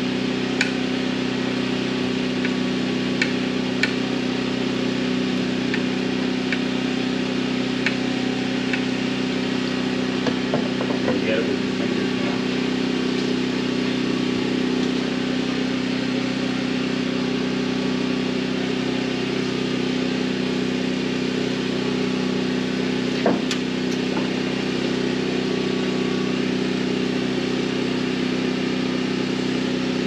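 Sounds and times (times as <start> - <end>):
steady motor drone: 0.0 - 30.0
sharp click: 23.5 - 24.0.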